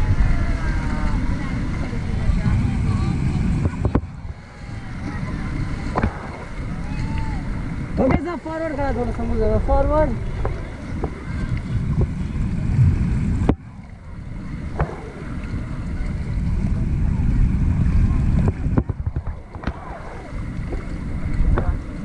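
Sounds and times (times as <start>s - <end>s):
water noise: 0.0s - 22.0s
wind buffeting microphone: 0.0s - 22.0s.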